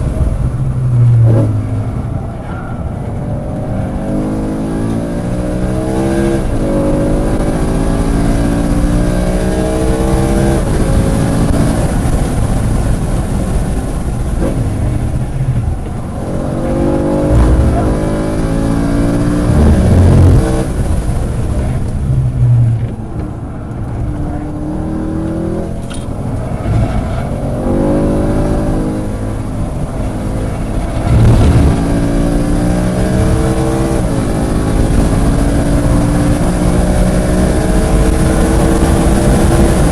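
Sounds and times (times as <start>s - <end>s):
race car engine at full throttle: 0.0s - 39.9s
heavy low thumps: 17.0s - 23.2s, 31.1s - 32.2s.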